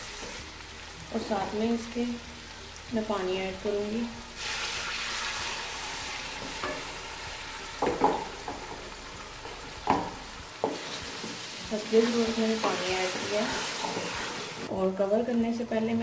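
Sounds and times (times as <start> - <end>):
steady frying sizzle: 0.0 - 14.7
water poured into hot oil sizzling: 4.2 - 10.4
wooden spoon knocking on pan: 7.8 - 8.8, 9.4 - 11.3.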